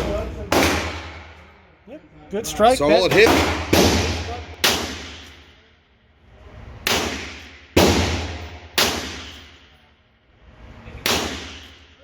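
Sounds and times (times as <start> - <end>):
handgun shots with ringing echo: 3.2 - 5.3, 6.9 - 9.5, 11.1 - 11.8.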